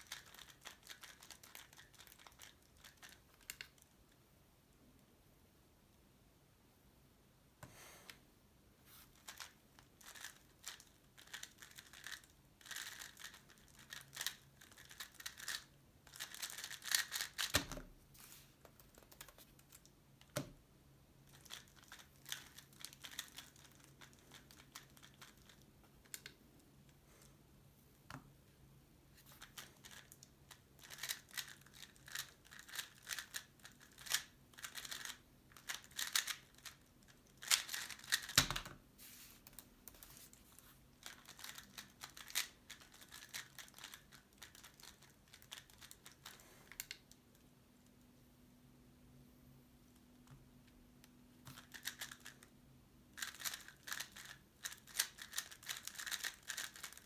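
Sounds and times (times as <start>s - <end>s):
puzzle cube clicking: 16.2s - 17.7s, 37.4s - 38.7s, 41.0s - 45.0s, 53.2s - 57.0s.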